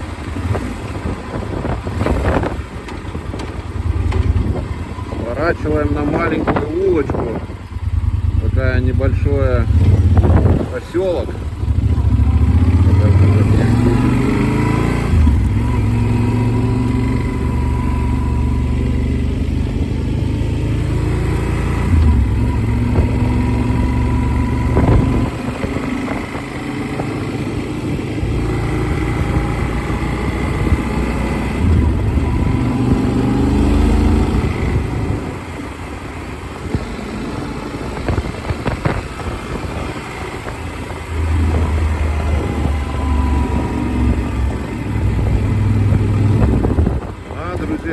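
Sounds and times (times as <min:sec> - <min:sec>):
motorcycle engine running: 0:00.0 - 0:47.9
wind rumble on microphone: 0:00.0 - 0:47.9.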